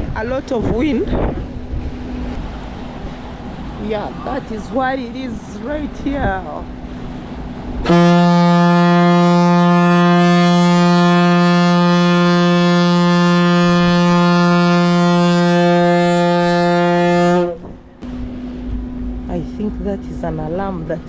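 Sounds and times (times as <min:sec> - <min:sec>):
ferry horn blast: 0:07.8 - 0:18.1.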